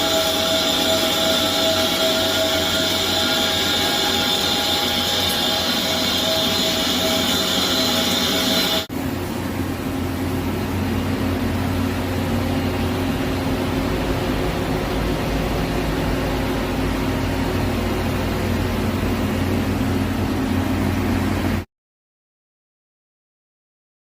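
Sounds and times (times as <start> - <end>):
lathe machine hum: 0.0 - 21.6.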